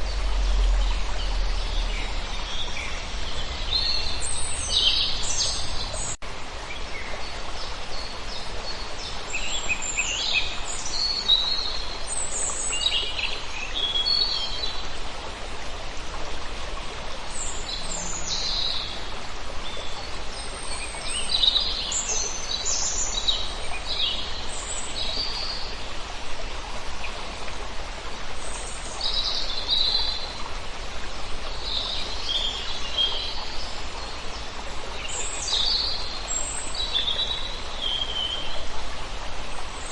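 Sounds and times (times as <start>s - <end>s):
low rumble: 0.0s - 3.8s.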